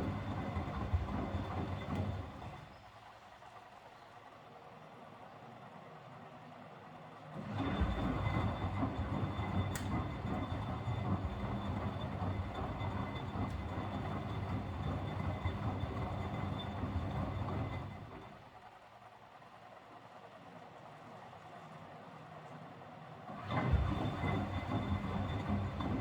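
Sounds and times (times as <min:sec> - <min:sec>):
washing machine drum rumbling: 0:07.6 - 0:18.2, 0:23.5 - 0:26.0
click: 0:09.7 - 0:10.0.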